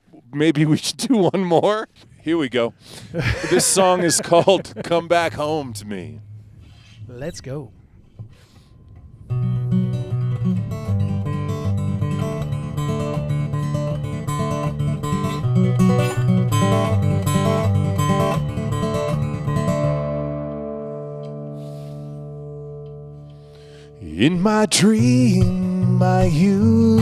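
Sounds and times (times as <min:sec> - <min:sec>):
acoustic guitar strumming chords: 0:09.0 - 0:27.0.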